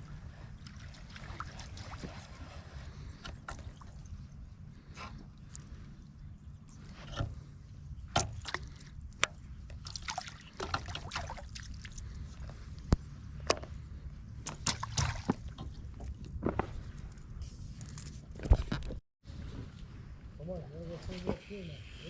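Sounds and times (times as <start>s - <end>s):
river water lapping: 0.0s - 16.4s.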